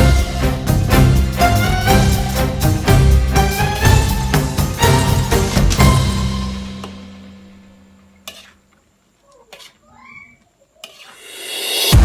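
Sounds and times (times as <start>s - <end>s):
violin music with steady beat: 0.0s - 7.3s.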